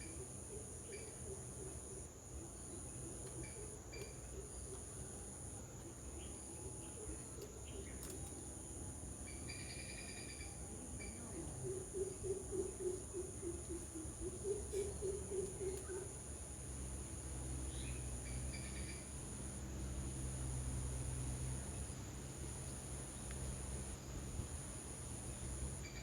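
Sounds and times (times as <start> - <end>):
high-pitched insect drone: 9.3 - 13.4, 25.8 - 26.0.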